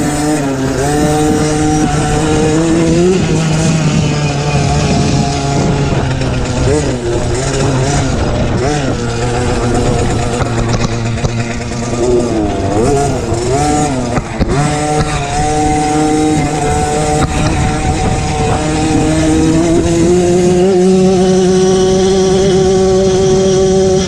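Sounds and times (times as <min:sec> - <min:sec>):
motocross bike engine revving: 0:00.0 - 0:24.0.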